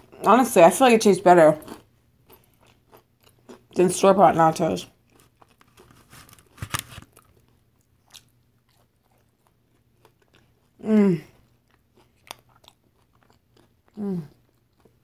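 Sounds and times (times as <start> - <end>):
woman chewing crunchy chips: 1.2 - 15.0
woman humming mm: 14.0 - 14.4.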